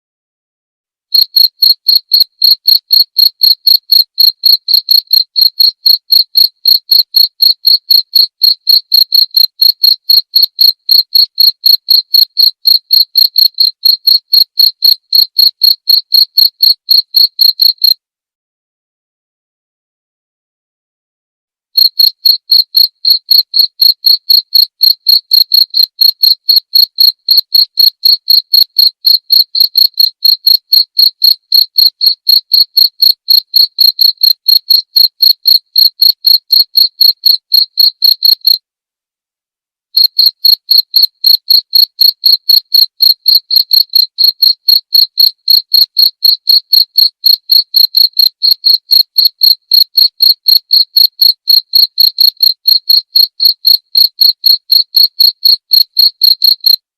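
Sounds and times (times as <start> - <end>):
cricket chirping: 1.2 - 17.9, 21.8 - 27.2, 33.8 - 35.7, 36.3 - 38.4, 40.0 - 52.3.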